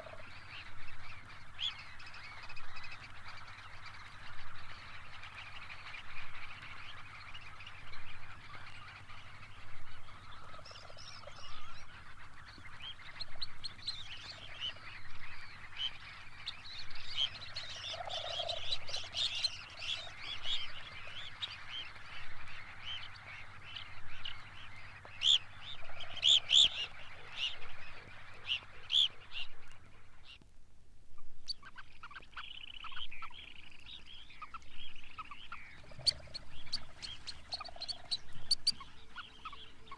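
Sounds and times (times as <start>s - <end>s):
phalaropes calling: 8.4s - 30.4s, 31.5s - 39.9s.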